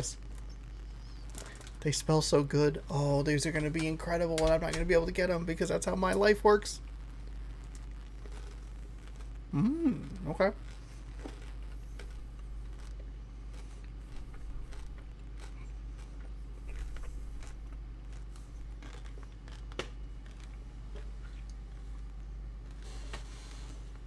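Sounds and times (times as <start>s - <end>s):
chewing and crunching candy: 0.0s - 1.9s, 7.0s - 24.0s
steady low hum: 0.0s - 24.0s.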